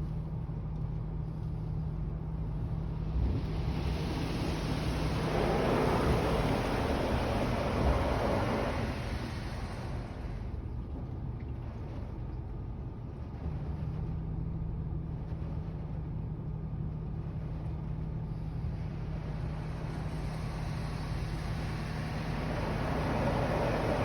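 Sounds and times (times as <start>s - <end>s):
car wash machinery rumble: 0.0s - 24.0s
low hum: 0.0s - 24.0s
rushing noise: 3.0s - 10.6s, 19.6s - 24.0s.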